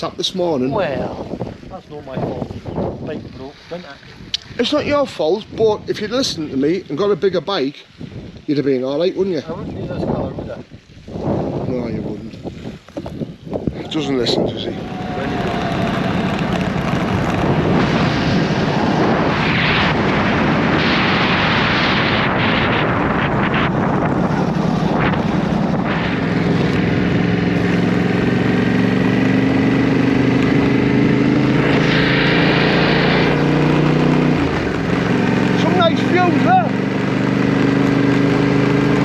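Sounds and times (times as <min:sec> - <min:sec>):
wind noise on microphone: 0:00.0 - 0:39.0
motorcycle engine: 0:14.2 - 0:39.0.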